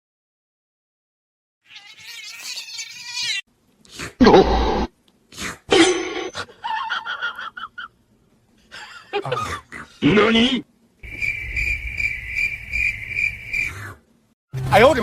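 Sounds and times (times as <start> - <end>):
cat meowing and yowling: 1.6 - 3.4.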